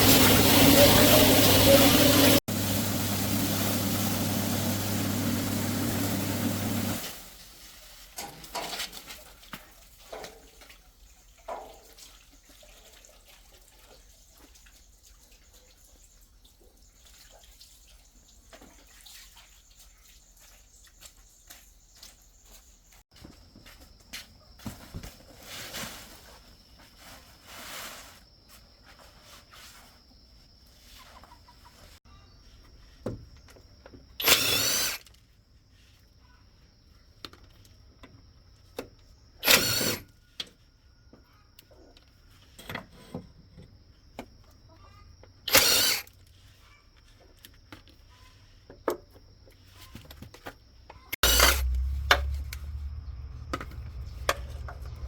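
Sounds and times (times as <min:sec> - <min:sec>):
power tool bursts: 0:00.0 - 0:07.2, 0:34.2 - 0:35.1, 0:39.4 - 0:40.1, 0:45.5 - 0:46.1, 0:51.2 - 0:52.6
low motor hum: 0:51.2 - 0:55.0.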